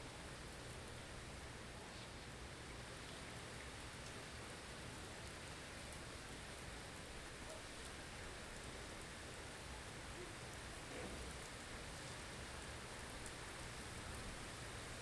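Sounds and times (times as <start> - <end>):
faint ticks: 13.0 - 13.4.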